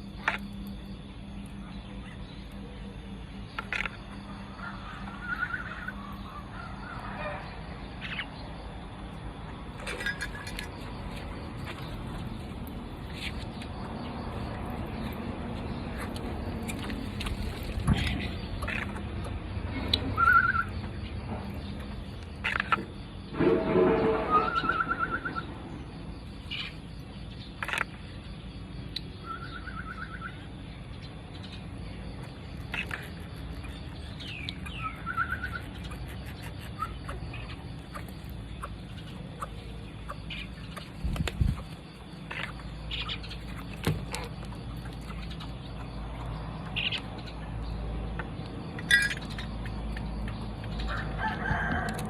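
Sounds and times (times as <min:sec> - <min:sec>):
parrot chicks chirping: 0:03.6 - 0:08.6, 0:13.0 - 0:21.0, 0:28.9 - 0:51.7.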